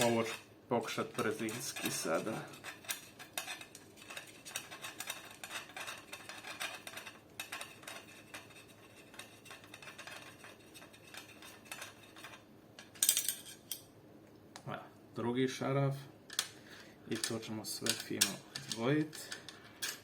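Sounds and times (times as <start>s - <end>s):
tool scraping metal parts: 0.0s - 13.8s, 17.1s - 20.0s.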